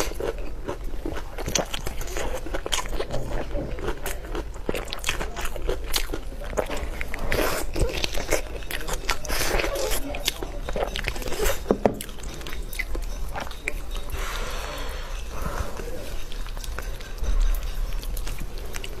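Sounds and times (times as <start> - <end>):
person chewing meat: 0.0 - 19.0.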